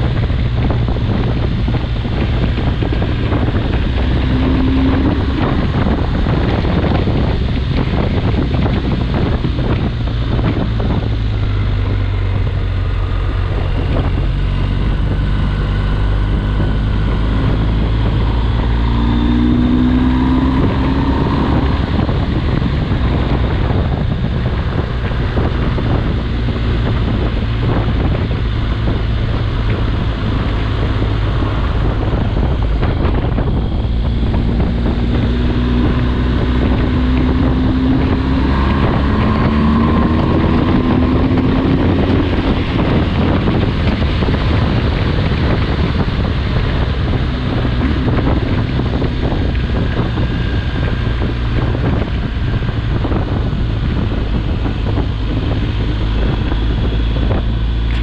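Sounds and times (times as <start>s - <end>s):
rising tone: 0.0s - 44.8s
motorcycle engine running: 0.0s - 58.0s
wind buffeting the microphone: 0.0s - 58.0s.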